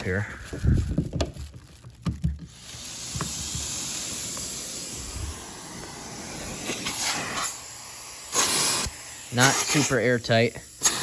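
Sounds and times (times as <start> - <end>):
vacuum air suction hiss: 2.5 - 11.0.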